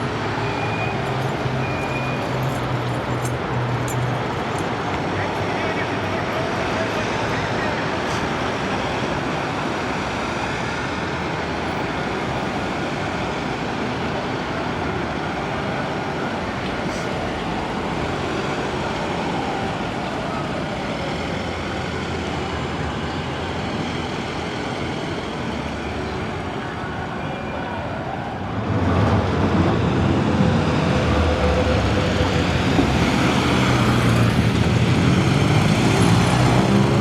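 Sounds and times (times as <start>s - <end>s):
vehicles driving past: 0.0s - 19.6s, 20.4s - 37.0s.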